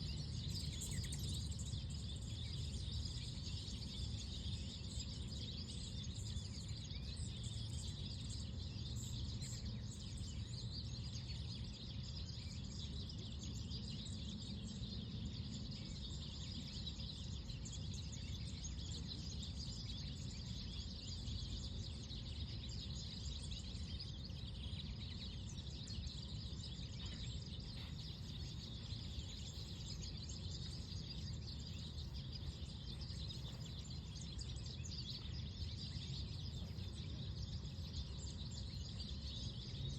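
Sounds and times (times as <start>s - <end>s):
small birds chirping: 0.0s - 39.9s
low background rumble: 22.6s - 39.9s.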